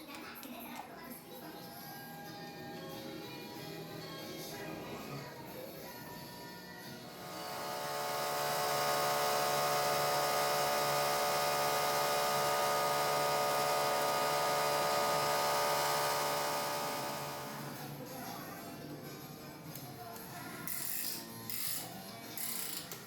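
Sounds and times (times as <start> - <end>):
machine humming: 7.1 - 17.9.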